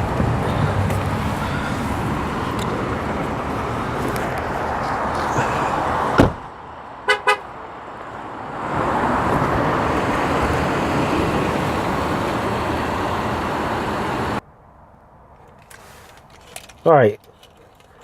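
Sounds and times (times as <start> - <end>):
outdoor traffic noise: 0.0 - 18.0
truck door shutting: 6.0 - 6.5.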